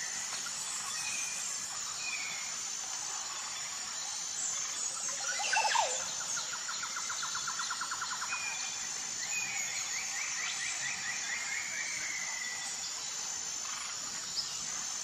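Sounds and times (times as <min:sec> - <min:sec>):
whistled bird calls: 0:05.2 - 0:06.0.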